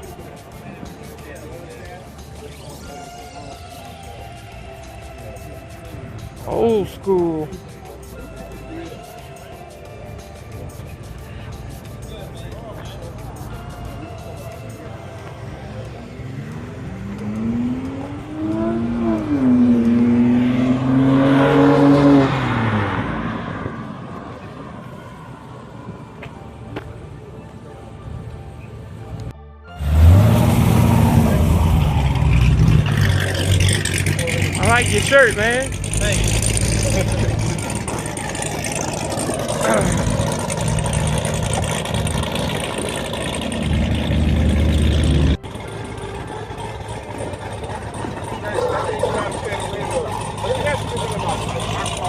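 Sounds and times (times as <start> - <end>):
car accelerating past: 15.5 - 25.0, 29.8 - 52.0.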